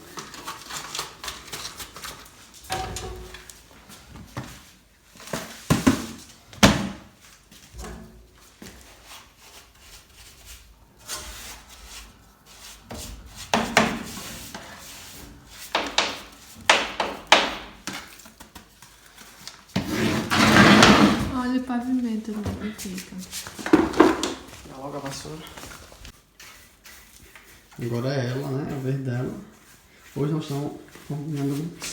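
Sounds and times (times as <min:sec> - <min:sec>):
wood knocking and scraping: 0:23.5 - 0:24.6.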